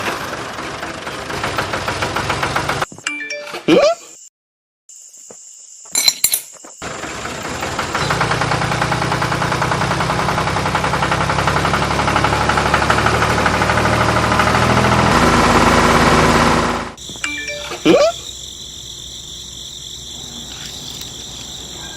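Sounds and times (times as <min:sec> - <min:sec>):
metallic clink: 0:06.0 - 0:06.6.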